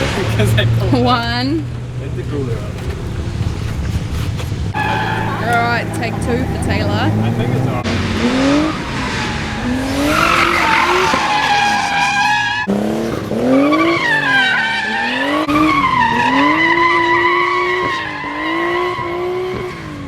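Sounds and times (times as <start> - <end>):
tyres squealing: 0.0 - 12.7
car engine revving: 0.0 - 20.0.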